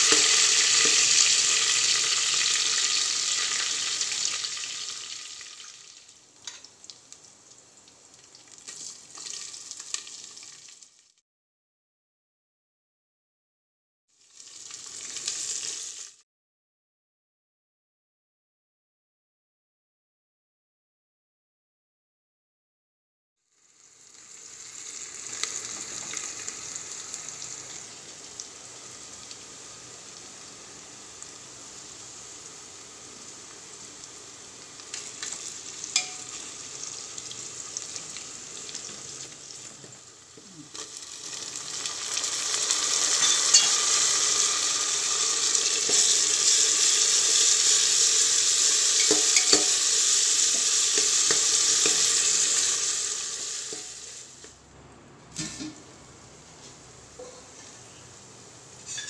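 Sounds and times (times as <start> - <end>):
onions sizzling in oil: 0.0 - 11.2, 14.1 - 16.2, 23.5 - 54.6, 56.6 - 59.0
metal spatula clinking on pot: 35.9 - 36.4, 43.2 - 43.8, 49.0 - 49.8.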